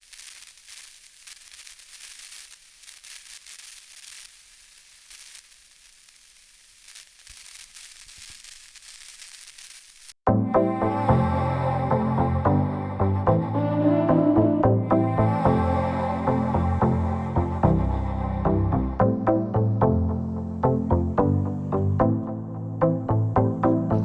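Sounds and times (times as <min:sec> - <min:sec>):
faint crackling hiss: 0:00.0 - 0:10.2.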